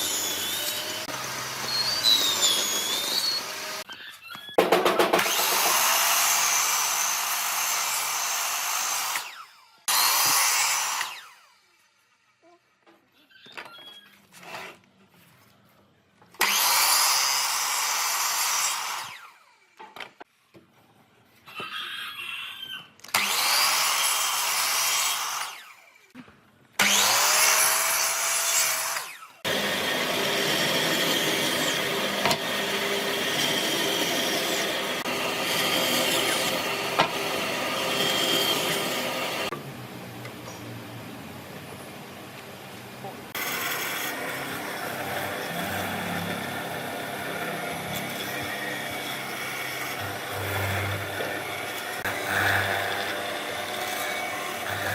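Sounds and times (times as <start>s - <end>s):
power tool cutting wood: 0.0s - 3.9s, 4.5s - 12.2s, 16.4s - 19.8s, 22.6s - 26.2s, 26.8s - 39.8s, 43.3s - 54.9s.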